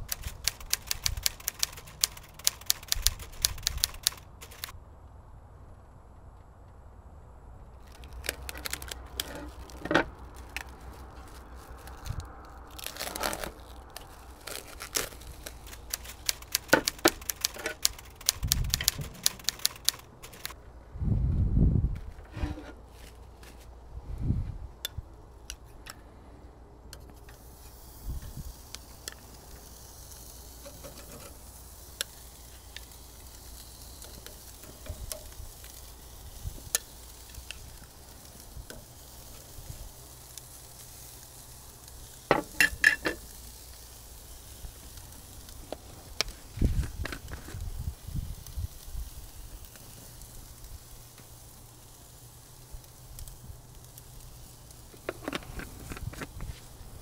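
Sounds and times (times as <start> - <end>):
burger patties sizzling on grill: 7.8 - 20.3, 27.0 - 57.0.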